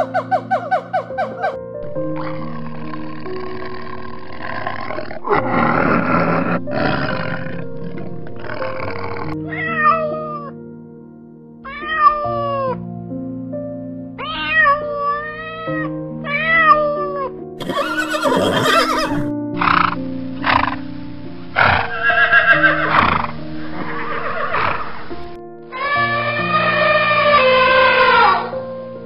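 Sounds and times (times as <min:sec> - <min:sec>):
animal calls: 0:00.0 - 0:09.9, 0:17.6 - 0:20.8, 0:21.6 - 0:25.2
slow background music: 0:00.0 - 0:29.0.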